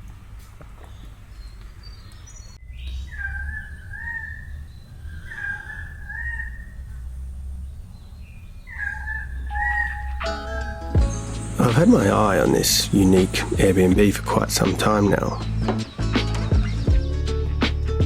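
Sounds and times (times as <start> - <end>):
birds calling: 0.0 - 18.0
steady low rumble: 6.0 - 17.2.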